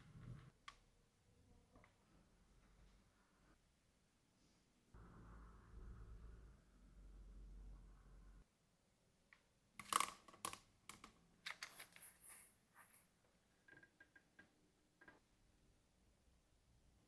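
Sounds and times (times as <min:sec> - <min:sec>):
low hum: 0:05.0 - 0:08.4.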